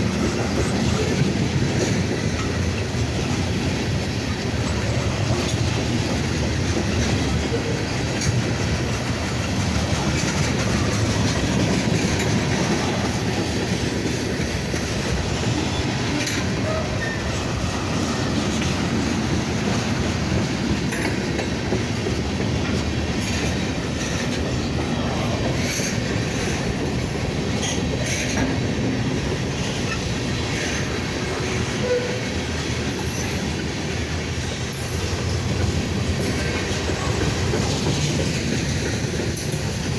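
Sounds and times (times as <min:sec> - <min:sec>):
freight train rumbling past: 0:00.0 - 0:39.9
wheels clicking over rail joints: 0:00.0 - 0:39.9
faint wheel squeal: 0:16.6 - 0:17.3.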